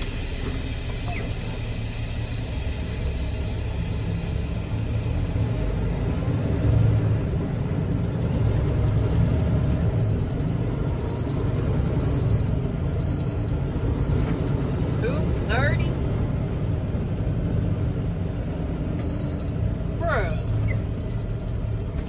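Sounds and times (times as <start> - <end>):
high-pitched warning beep: 0.0 - 6.6, 9.0 - 15.0, 19.0 - 21.6
diesel truck engine rumbling: 0.0 - 22.0.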